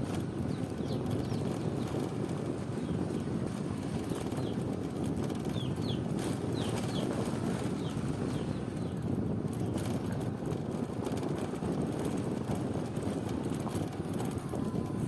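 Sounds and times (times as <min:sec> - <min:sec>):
low rumbling noise: 0:00.0 - 0:15.0
small birds chirping: 0:00.4 - 0:02.1, 0:02.8 - 0:04.6, 0:05.4 - 0:09.0.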